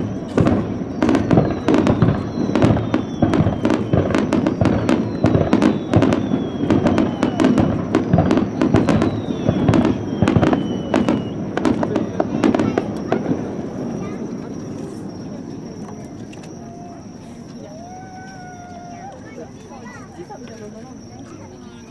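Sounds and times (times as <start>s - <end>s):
firework whistles falling: 0.0s - 20.2s
fireworks bangs and crackles: 0.0s - 21.6s.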